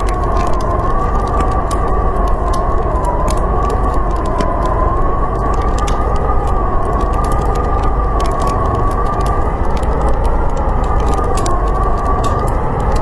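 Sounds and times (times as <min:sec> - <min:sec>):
howling blizzard wind: 0:00.0 - 0:13.0
wood fire crackling: 0:00.0 - 0:13.0.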